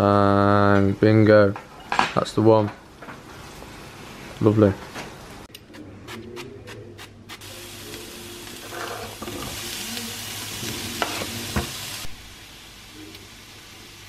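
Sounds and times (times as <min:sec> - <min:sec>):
cooking oil spray spritzes: 0:07.0 - 0:14.0
food sizzling in a pan: 0:07.0 - 0:14.0.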